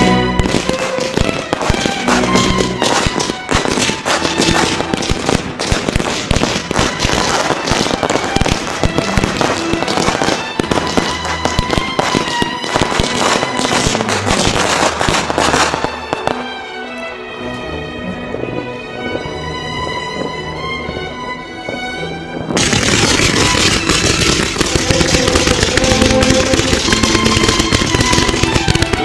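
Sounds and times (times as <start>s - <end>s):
fireworks bangs and crackling: 0.0s - 16.5s, 22.4s - 29.0s
music playing: 0.0s - 29.0s.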